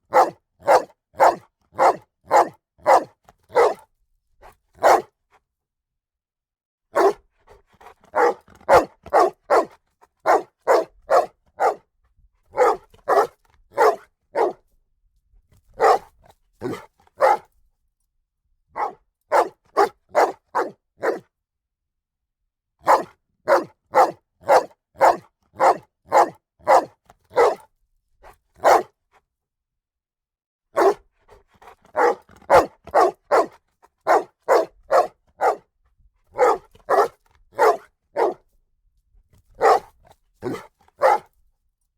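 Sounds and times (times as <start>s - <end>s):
dog barking: 0.1s - 5.2s, 6.9s - 11.9s, 12.5s - 14.6s, 15.7s - 17.5s, 18.8s - 21.3s, 22.8s - 29.0s, 30.8s - 35.7s, 36.3s - 38.5s, 39.5s - 41.3s.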